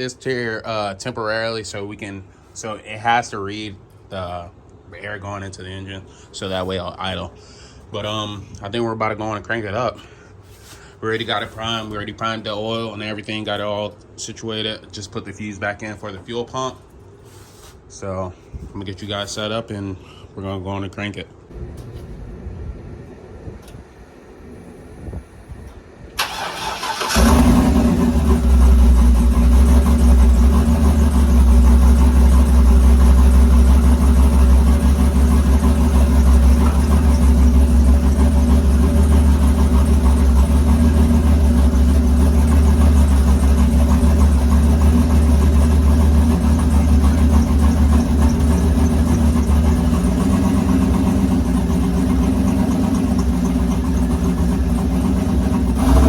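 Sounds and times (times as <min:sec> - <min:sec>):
starter cranking: 0:26.2 - 0:30.5
engine idling with deep rumble: 0:26.2 - 0:56.0.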